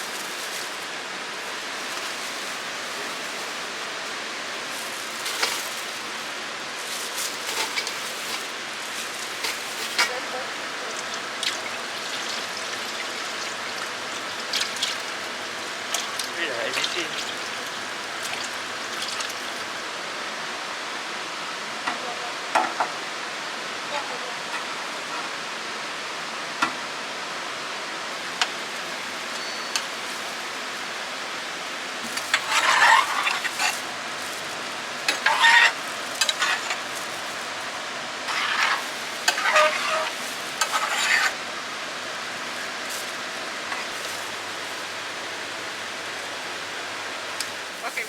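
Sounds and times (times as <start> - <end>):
stirring and scraping: 0.0 - 10.3, 32.0 - 41.6
food sizzling: 0.0 - 19.8, 28.0 - 48.0.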